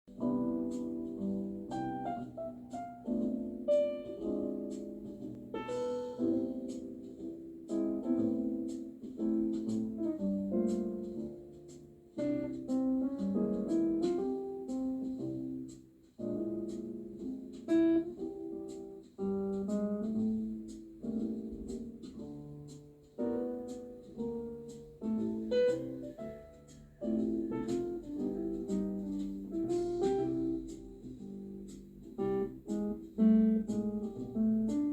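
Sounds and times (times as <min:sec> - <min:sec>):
light ticking beat: 0:00.1 - 0:34.9
slow piano music: 0:00.1 - 0:34.9.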